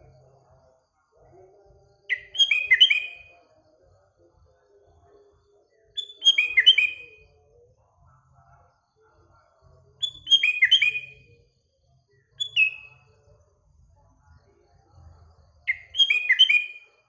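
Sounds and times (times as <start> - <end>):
bulbul singing: 2.1 - 3.4, 6.0 - 7.2, 10.0 - 11.2, 12.4 - 13.0, 15.7 - 16.9.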